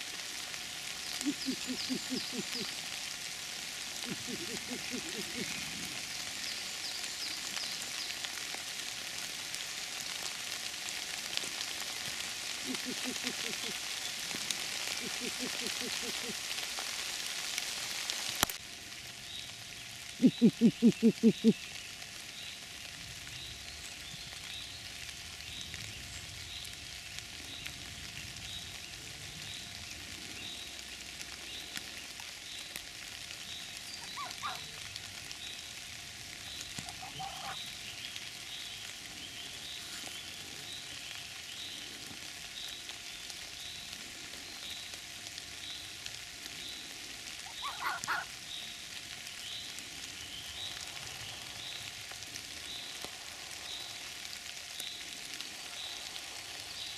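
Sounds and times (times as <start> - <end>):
rain falling on forest floor: 0.0 - 56.9
short calls: 1.2 - 2.9, 4.0 - 5.8, 12.6 - 13.9, 14.8 - 16.4, 20.2 - 21.6.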